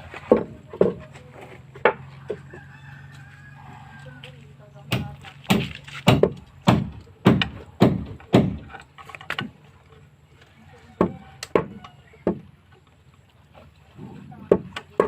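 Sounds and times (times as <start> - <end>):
tool striking wood: 4.9 - 9.5.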